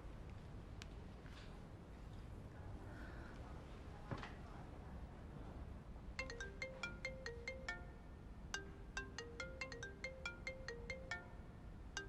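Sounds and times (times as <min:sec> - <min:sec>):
mobile phone ringtone melody: 0:06.2 - 0:12.0.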